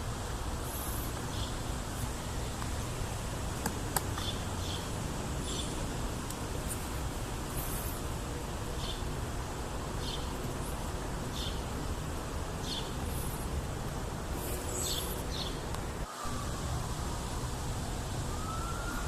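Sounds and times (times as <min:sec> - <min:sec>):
faint gliding siren tone: 0:16.1 - 0:19.0.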